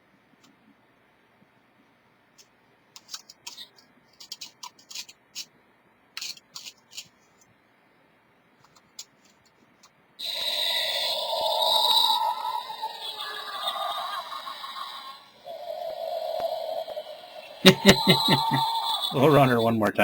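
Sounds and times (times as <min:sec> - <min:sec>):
loud electronic sound effect: 0:10.2 - 0:20.0.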